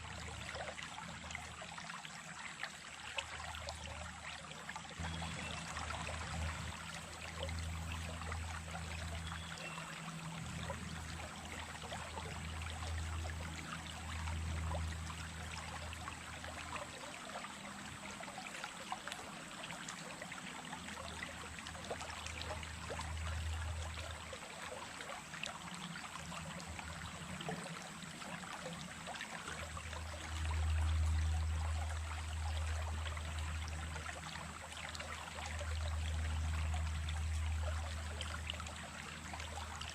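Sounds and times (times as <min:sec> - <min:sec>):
water babbling over stones: 0:00.0 - 0:39.9.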